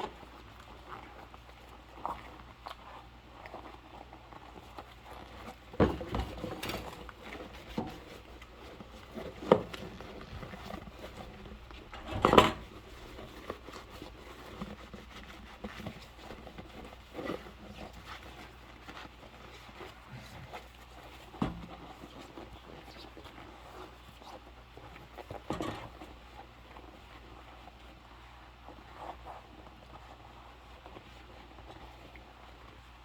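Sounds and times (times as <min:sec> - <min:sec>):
dishes knocking and clattering: 0:09.1 - 0:13.5.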